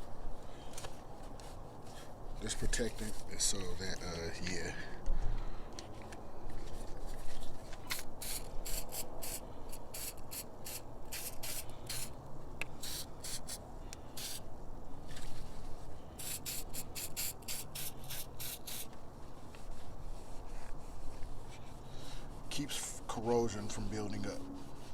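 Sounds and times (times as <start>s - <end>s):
hissing strokes at battery terminal: 8.2s - 12.1s, 12.8s - 13.6s, 14.2s - 14.4s.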